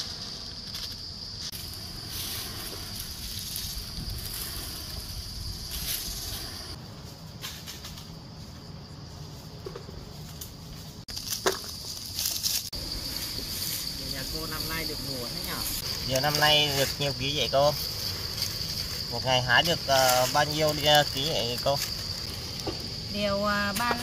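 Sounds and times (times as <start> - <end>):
insects shrilling: 0.0 - 24.0
rustles: 0.0 - 24.0
wind rumble on microphone: 1.6 - 6.9.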